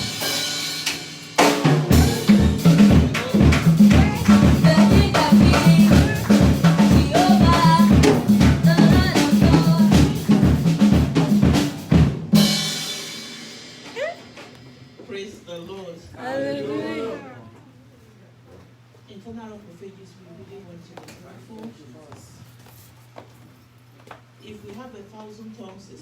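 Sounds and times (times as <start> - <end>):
drum kit kick and snare: 0.0 - 14.8
live band music: 0.0 - 15.0
bass line: 1.8 - 11.6.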